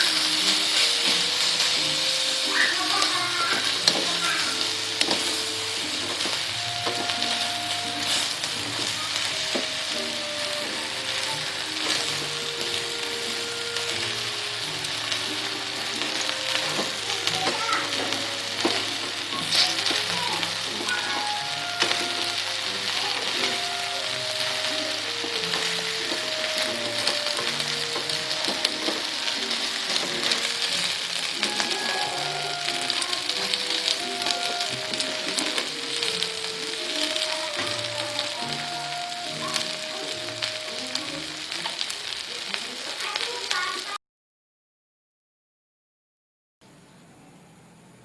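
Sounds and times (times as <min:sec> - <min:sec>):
utensil clicking against pan: 0:00.0 - 0:09.8, 0:15.1 - 0:39.8
soft background music: 0:00.0 - 0:42.3
food sizzling in a frying pan: 0:00.0 - 0:44.0.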